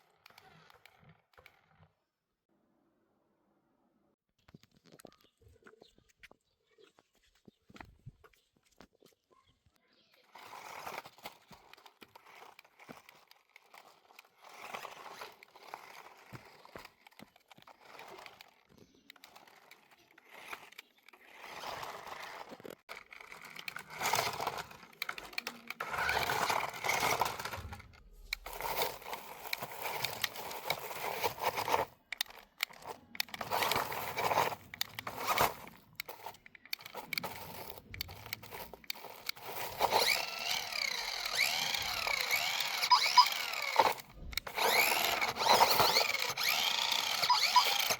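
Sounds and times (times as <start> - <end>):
toy packaging crinkling and tearing: 9.9 - 47.9.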